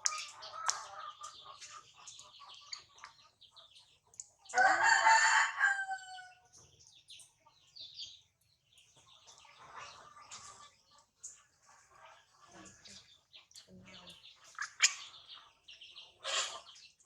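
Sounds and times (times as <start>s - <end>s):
rooster crowing: 4.6s - 6.4s.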